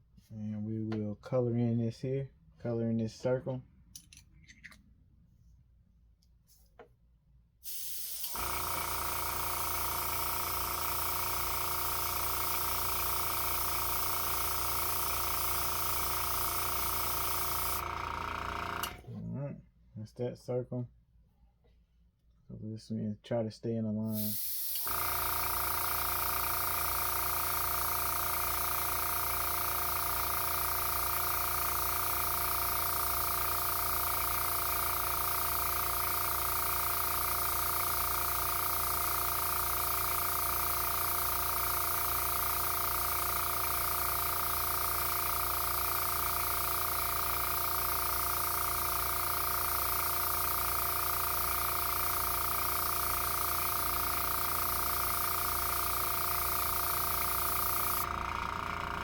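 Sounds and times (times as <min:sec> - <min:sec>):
air hissing through airbrush: 0:07.6 - 0:17.8, 0:24.1 - 0:27.4, 0:35.4 - 0:58.1
compressor motor hum: 0:07.8 - 0:19.2, 0:24.1 - 0:59.0.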